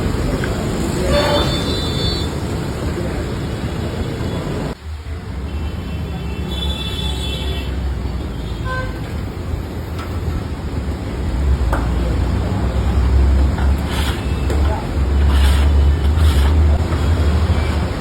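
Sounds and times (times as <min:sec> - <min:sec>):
busy street traffic: 0:00.0 - 0:18.0
high-pitched vehicle horn: 0:01.1 - 0:02.4.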